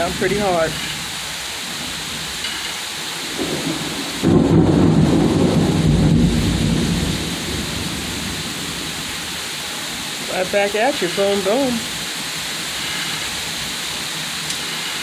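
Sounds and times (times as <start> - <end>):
thunder rumbling: 0.0 - 2.4, 3.2 - 10.4
heavy rain pouring: 0.0 - 15.0.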